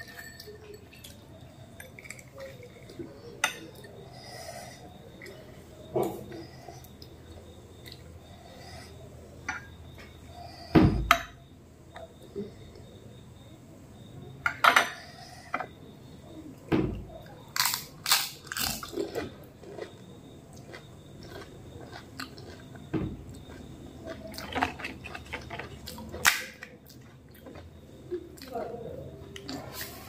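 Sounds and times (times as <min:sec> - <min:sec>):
chewing: 0:00.0 - 0:09.0, 0:17.2 - 0:30.0.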